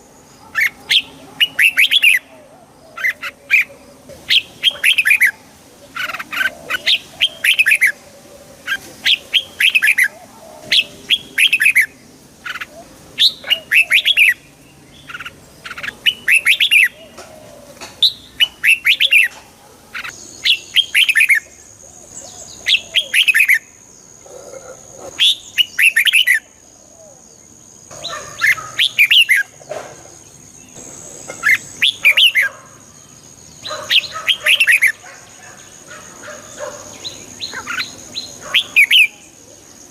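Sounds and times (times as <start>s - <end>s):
bird singing whistled notes: 31.4s - 32.5s.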